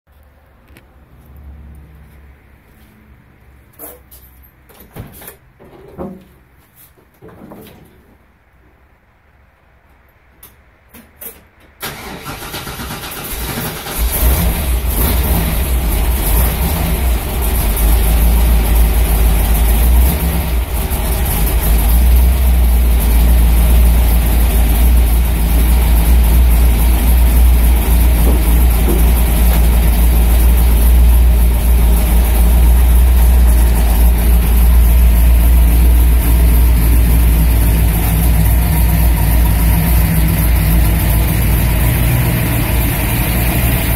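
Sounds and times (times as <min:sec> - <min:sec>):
car engine starting and idling: 0:11.2 - 0:43.9.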